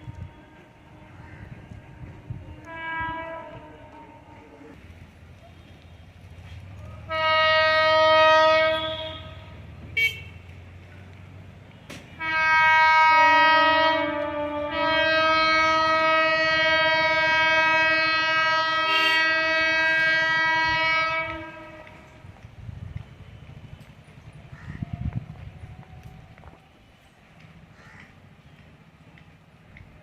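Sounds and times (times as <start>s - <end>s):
train horn blasts: 0.0s - 4.8s, 7.0s - 10.4s, 12.2s - 22.2s.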